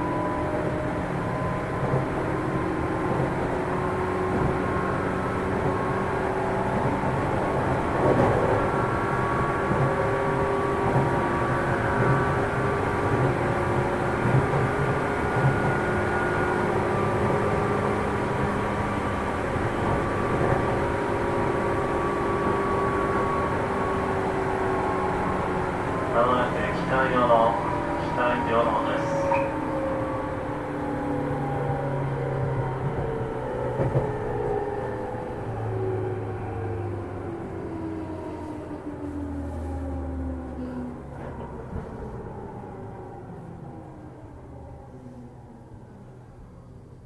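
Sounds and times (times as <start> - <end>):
wheels rumbling on rail: 0.0 - 47.0
train knocks: 32.5 - 34.8.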